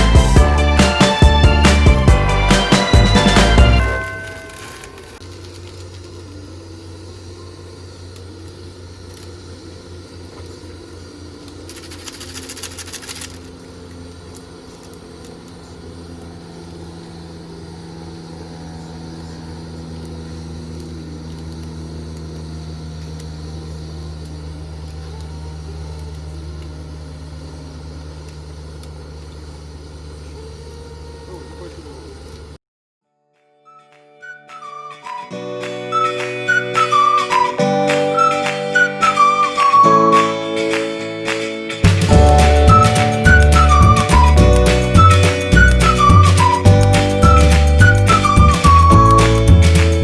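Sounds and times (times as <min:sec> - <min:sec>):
low engine hum: 0:05.1 - 0:32.6, 0:41.9 - 0:50.0.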